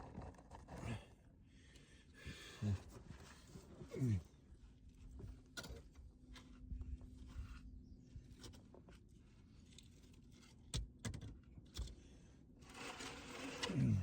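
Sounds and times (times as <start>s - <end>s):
scraping and rustling: 12.6s - 14.0s.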